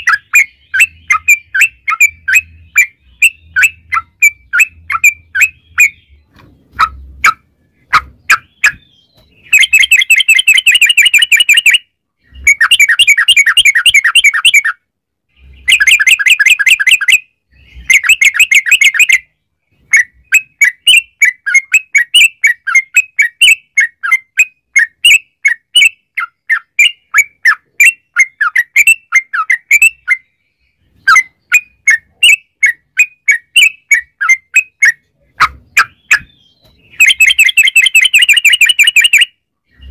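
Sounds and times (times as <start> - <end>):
bird chirps: 0.0 - 39.9
bird quick chattering notes: 31.0 - 39.9
bird rapid rattling trills: 36.9 - 39.2.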